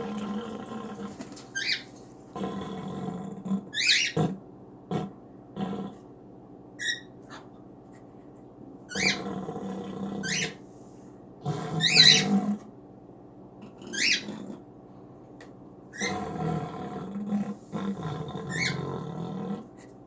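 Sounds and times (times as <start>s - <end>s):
cockatiel chirping: 6.8s - 7.1s, 13.9s - 14.2s.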